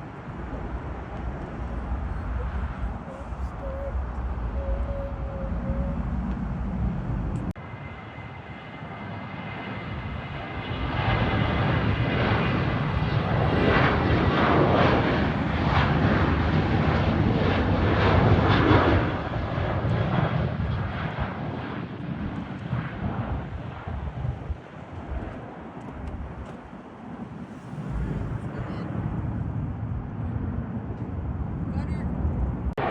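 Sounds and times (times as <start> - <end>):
low rumble: 0.0 - 7.6, 27.4 - 32.8
airliner engine rumble and whine: 0.0 - 32.9.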